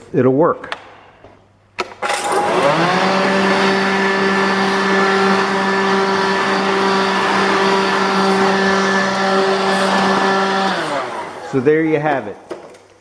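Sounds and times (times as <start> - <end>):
vacuum motor whine: 2.2 - 11.6
air blowing out: 2.4 - 11.8.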